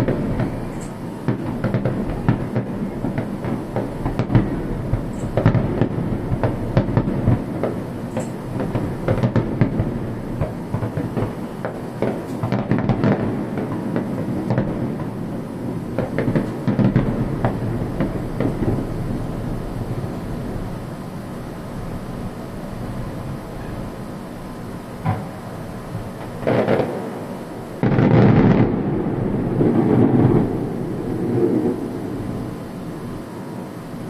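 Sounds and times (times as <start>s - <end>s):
fireworks cracks and bangs: 0.0s - 24.0s, 25.0s - 33.2s
rolling rumble of booms: 0.0s - 27.0s.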